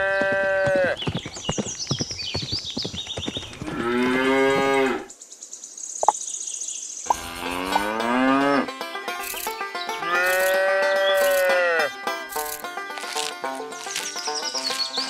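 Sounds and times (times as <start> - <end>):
cow mooing: 3.6 - 5.1, 7.1 - 8.7, 10.0 - 11.9.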